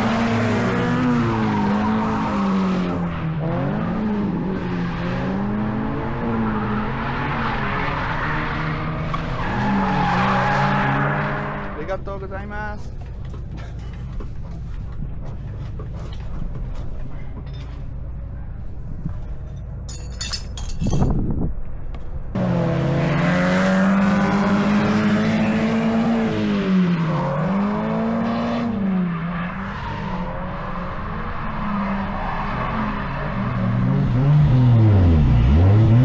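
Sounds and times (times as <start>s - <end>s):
car engine revving: 22.4s - 29.0s.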